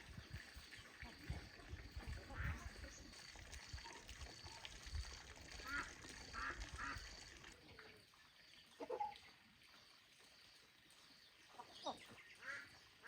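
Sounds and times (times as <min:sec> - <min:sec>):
faint quacking calls: 0:05.6 - 0:07.1, 0:11.7 - 0:12.7.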